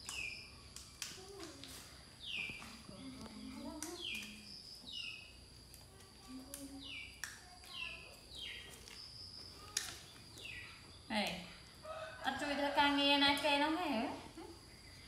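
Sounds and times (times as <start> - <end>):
bird chirping: 0.0 - 1.1, 2.1 - 5.5, 6.6 - 12.1
clicks and snaps of stems handled: 0.0 - 4.5, 5.6 - 10.6.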